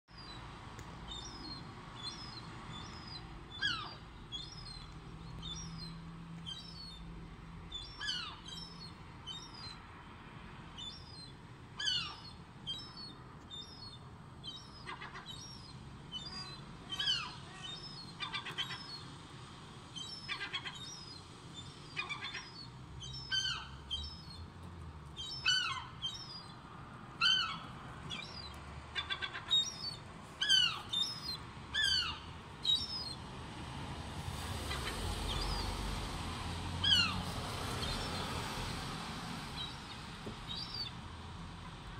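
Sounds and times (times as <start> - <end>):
birds downward-sliding calls: 1.1 - 7.0, 7.7 - 9.8, 10.8 - 19.0, 20.0 - 24.4, 25.2 - 26.6, 27.2 - 33.2, 34.6 - 35.9, 36.8 - 38.8.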